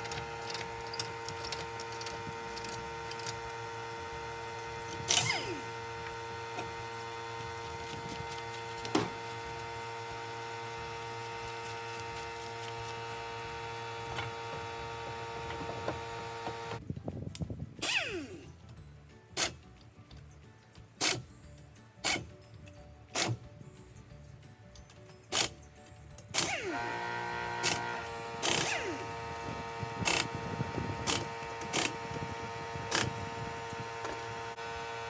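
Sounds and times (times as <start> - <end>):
machine hum: 0.0 - 16.8, 26.4 - 35.0.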